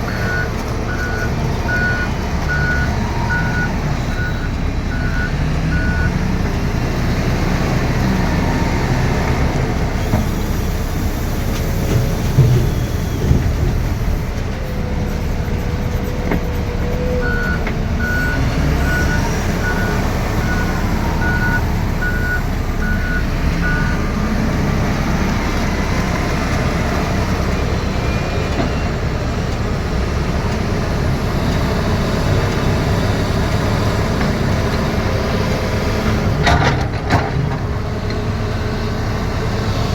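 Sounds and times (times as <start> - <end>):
diesel engine running under load: 0.0 - 39.9
reversing alarm beeps: 0.1 - 6.2, 17.2 - 24.0.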